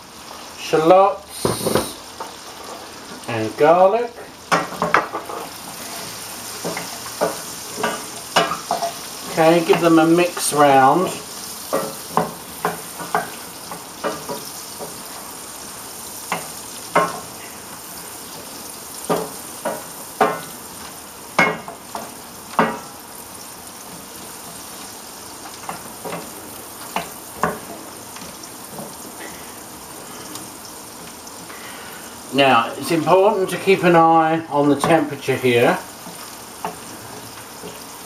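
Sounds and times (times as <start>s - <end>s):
shallots and garlic sizzling: 0.0s - 38.0s
wooden spoon scraping pan: 4.8s - 15.1s.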